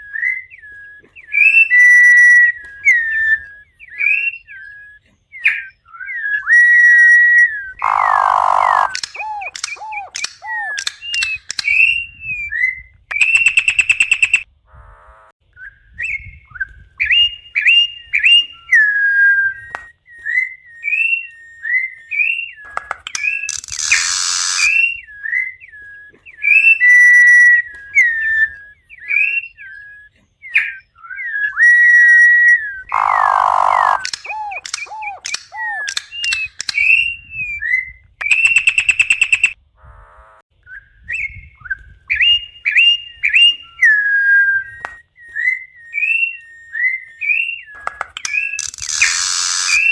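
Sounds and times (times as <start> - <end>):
bird whistling phrases: 0.0 - 14.5, 15.5 - 39.6, 40.6 - 49.9
harsh buzzy bird notes: 6.6 - 15.3, 22.2 - 25.3, 31.8 - 37.3, 47.3 - 49.9.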